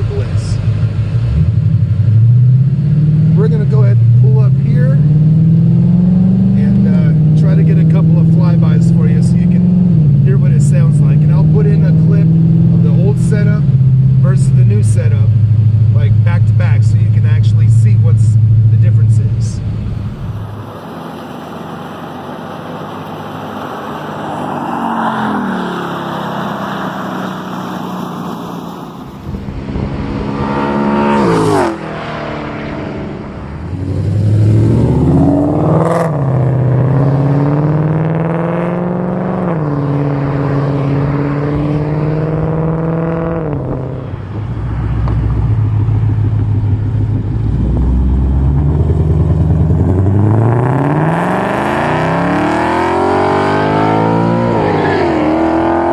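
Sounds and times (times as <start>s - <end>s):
car engine revving: 0.0s - 55.9s
car passing by at speed: 19.6s - 45.4s.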